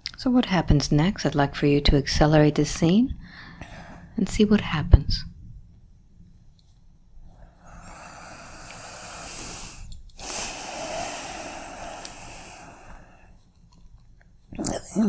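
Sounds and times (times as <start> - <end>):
person breathing deeply: 3.2 - 4.2, 7.2 - 13.4.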